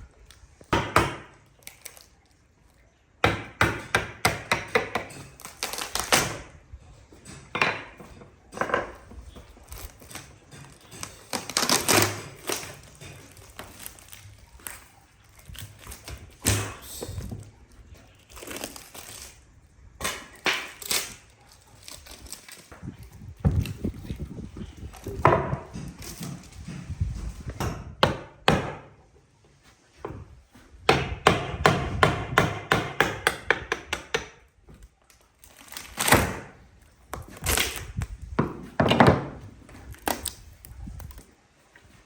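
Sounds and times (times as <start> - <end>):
woodworking knocks and taps: 7.4 - 9.5, 25.0 - 28.9, 30.9 - 34.8, 38.3 - 39.4.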